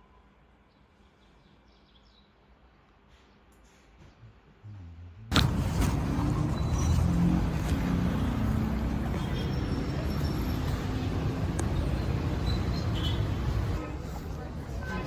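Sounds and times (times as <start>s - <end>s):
vehicle engine rumble: 4.2s - 15.0s
road noise: 4.6s - 15.0s.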